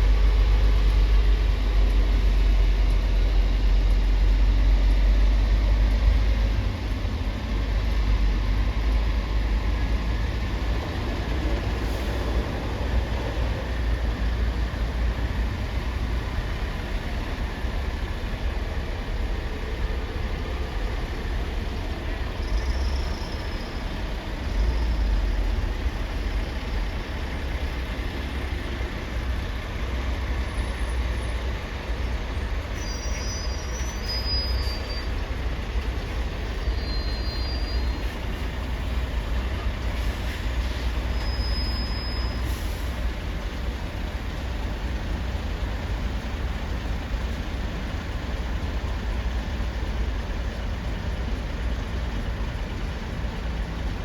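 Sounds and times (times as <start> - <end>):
heavy trucks rumbling: 0.0 - 54.0
faint high squeaks: 32.7 - 35.2, 36.5 - 38.2, 41.1 - 42.5.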